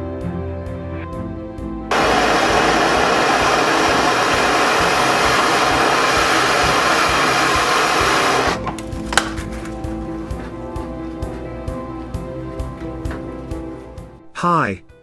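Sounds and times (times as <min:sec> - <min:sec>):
torch flame hissing: 0:01.9 - 0:08.6.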